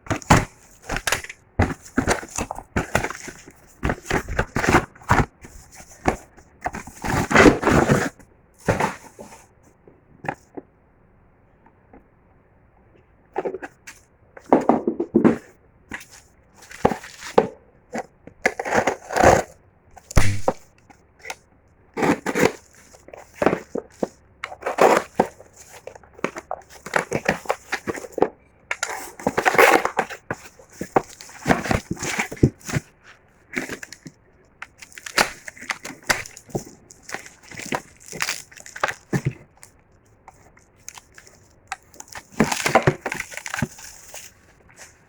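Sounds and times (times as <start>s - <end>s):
packaging crinkling and tearing: 33.5s - 39.7s, 40.3s - 44.9s.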